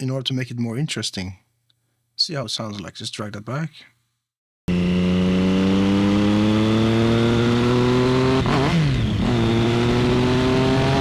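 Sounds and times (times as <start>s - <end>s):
motorcycle engine accelerating: 4.7s - 11.0s.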